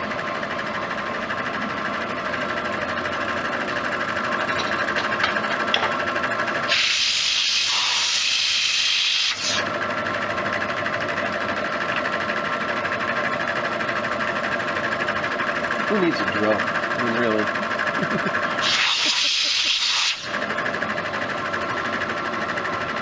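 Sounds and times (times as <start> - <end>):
milling machine running: 0.0 - 23.0
loud hiss: 6.7 - 9.6, 18.6 - 20.3.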